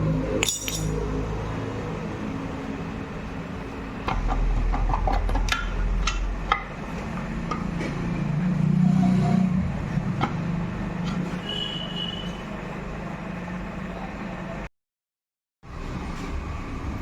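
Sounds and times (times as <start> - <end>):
metal parts and tools clinking: 0.4 - 1.2.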